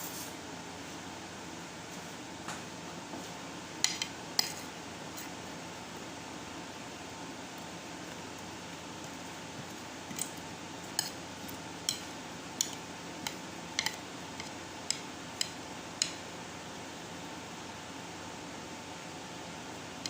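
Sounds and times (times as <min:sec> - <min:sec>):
fan-like hum: 0:00.0 - 0:20.0.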